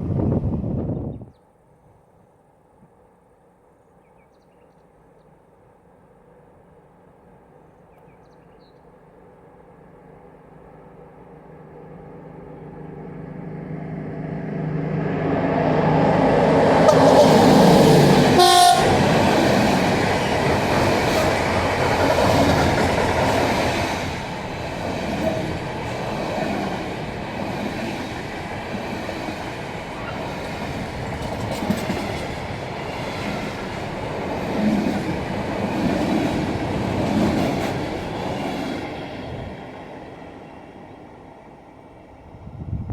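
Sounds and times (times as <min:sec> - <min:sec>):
locomotive hum: 0:10.0 - 0:42.8
train wheels on rails: 0:13.5 - 0:41.5.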